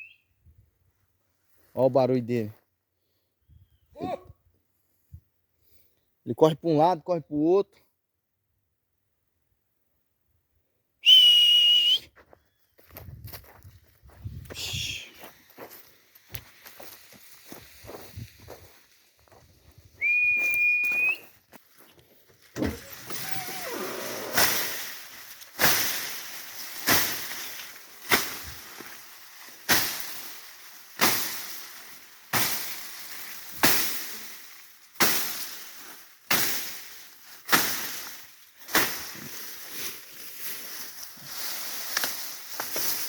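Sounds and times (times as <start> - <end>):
high whistled note: 14.6 - 15.2, 20.0 - 21.3
sharp rustling strikes: 22.5 - 43.0.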